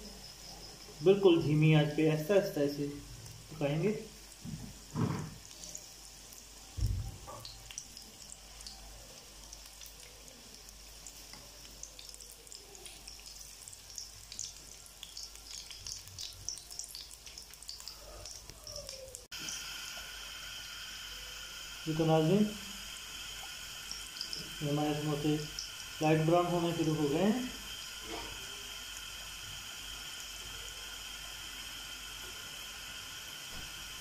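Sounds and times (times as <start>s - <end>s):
food deep-frying in oil: 0.0s - 34.0s
low thump: 6.8s - 7.2s.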